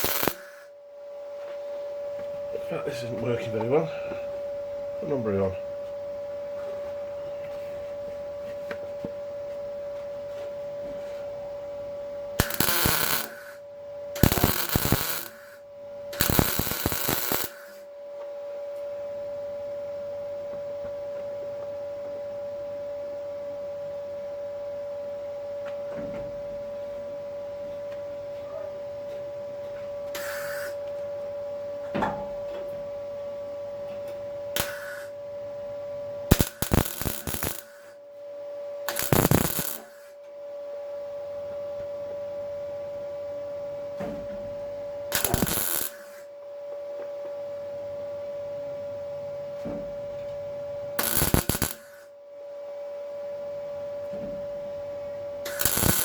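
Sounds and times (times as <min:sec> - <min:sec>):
welder crackling: 0:00.0 - 0:00.7, 0:12.4 - 0:13.6, 0:14.2 - 0:15.6, 0:16.2 - 0:17.8, 0:30.2 - 0:30.8, 0:34.6 - 0:35.1, 0:36.3 - 0:38.0, 0:38.9 - 0:40.1, 0:45.1 - 0:46.3, 0:51.0 - 0:52.1, 0:55.4 - 0:56.0
steady hum: 0:00.0 - 0:56.0.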